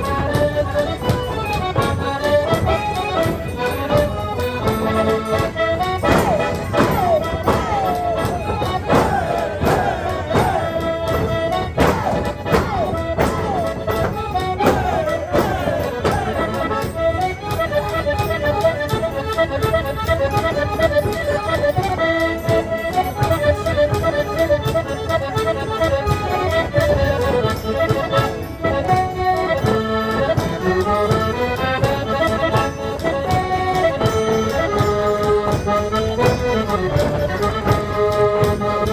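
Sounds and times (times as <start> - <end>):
accordion folk tune: 0.0 - 38.9
percussion beat: 0.0 - 38.9.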